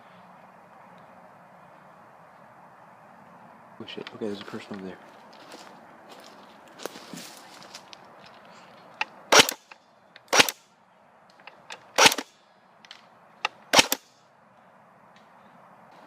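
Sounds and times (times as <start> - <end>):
airsoft gun shots: 9.3 - 9.7, 10.3 - 10.6, 12.0 - 12.3, 13.7 - 14.0.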